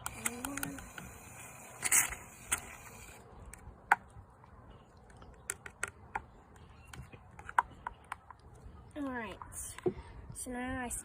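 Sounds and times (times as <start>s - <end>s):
handling clicks and taps: 0.0s - 1.1s, 5.0s - 8.6s.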